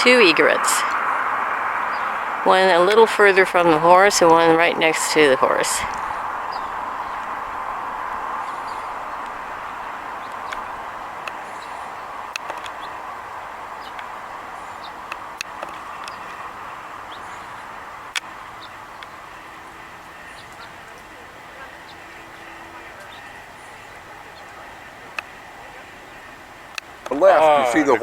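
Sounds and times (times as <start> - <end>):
faint bird chirps: 0.0 - 27.1
passing traffic: 0.0 - 28.0
sharp clicks: 10.2 - 13.0, 14.8 - 16.5.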